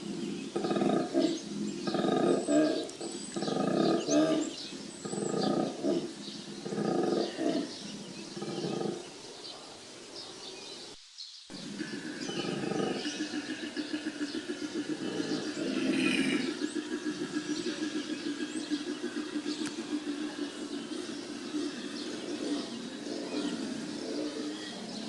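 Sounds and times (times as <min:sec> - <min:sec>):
birds chirping faintly: 0:00.0 - 0:25.0
koala bellowing: 0:11.5 - 0:25.0.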